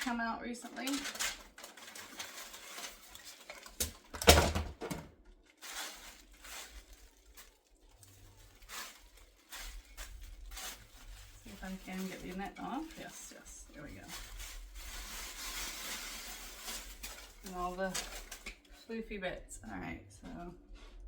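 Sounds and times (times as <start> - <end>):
rustling and scuffing of wig: 0.8 - 4.1, 5.3 - 18.9.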